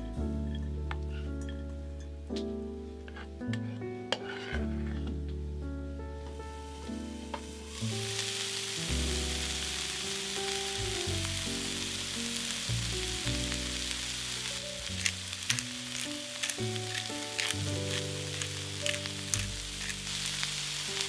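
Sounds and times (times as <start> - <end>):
food frying in oil: 6.7 - 21.0.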